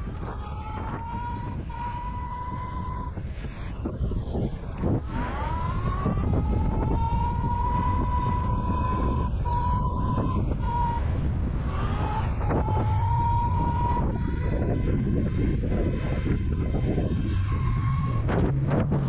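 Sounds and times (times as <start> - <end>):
electric bike motor whining: 0.0 - 19.0
wind rumble on microphone: 0.0 - 19.0.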